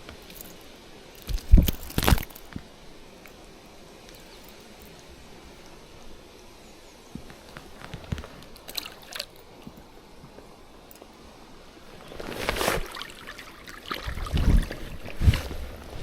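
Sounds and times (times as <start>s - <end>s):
water splashing and sloshing: 7.4s - 11.1s, 11.8s - 16.0s.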